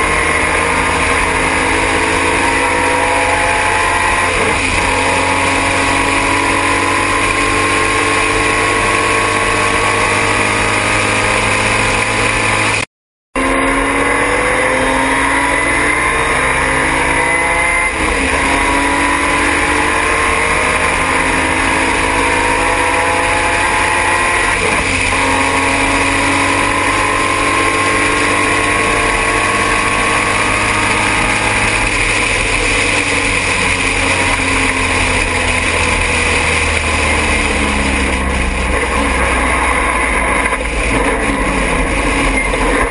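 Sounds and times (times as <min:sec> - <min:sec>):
race car engine revving: 0:00.0 - 0:42.9
wind and road noise: 0:00.0 - 0:42.9.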